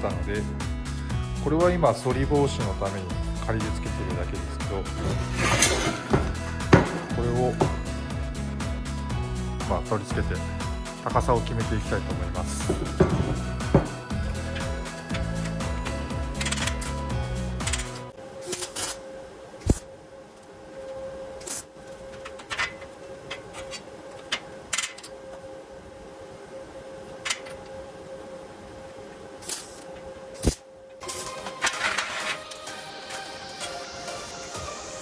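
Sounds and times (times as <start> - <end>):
metal frame parts knocking: 4.8 - 8.2, 12.0 - 15.3.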